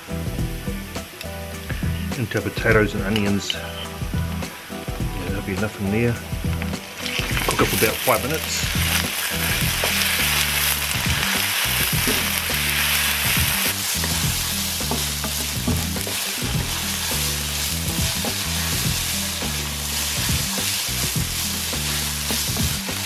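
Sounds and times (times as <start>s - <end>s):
background music bass line: 0.0s - 23.0s
vegetables sizzling in a wok: 6.5s - 23.0s
wooden spatula scraping pan: 6.6s - 23.0s.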